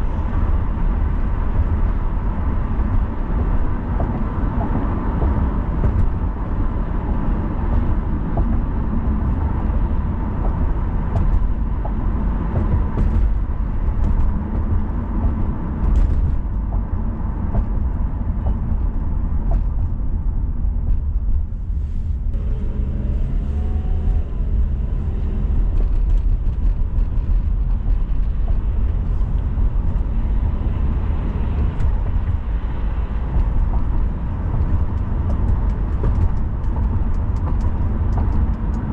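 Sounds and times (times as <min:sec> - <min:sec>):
car engine hum: 0:00.0 - 0:38.9
road and tyre rumble: 0:00.0 - 0:38.9
small ticks and knocks: 0:34.6 - 0:38.9.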